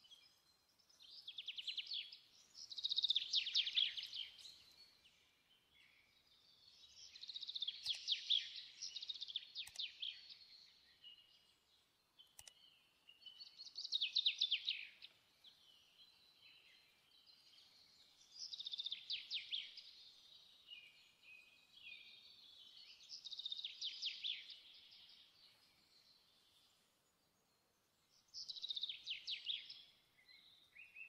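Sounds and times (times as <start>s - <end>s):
songbird chirping: 0.0s - 31.0s
faint click: 7.6s - 10.4s, 12.2s - 12.8s.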